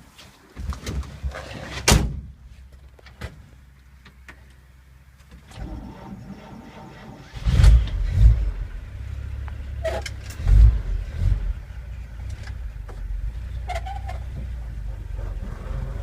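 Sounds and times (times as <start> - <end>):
truck engine revving and idling: 5.6 - 16.0
short squeaks: 13.5 - 14.4.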